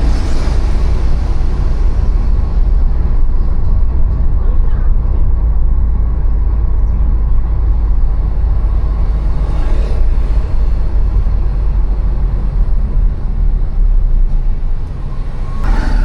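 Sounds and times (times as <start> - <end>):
street traffic rumble: 0.0 - 16.0
vehicle passing close: 7.9 - 16.0.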